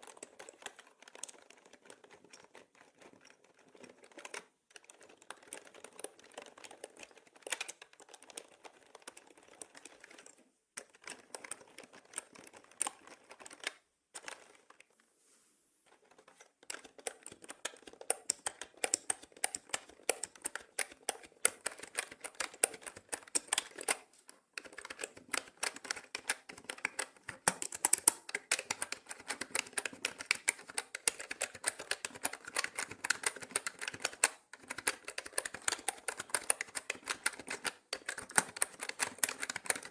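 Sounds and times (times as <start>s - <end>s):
mechanical keyboard typing: 0.0s - 14.8s, 15.9s - 39.9s.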